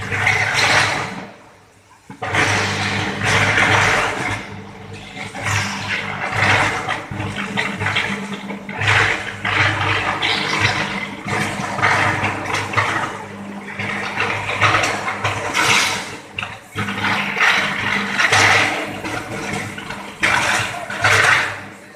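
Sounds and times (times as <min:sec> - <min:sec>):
furnace surging roar: 0:00.0 - 0:21.9.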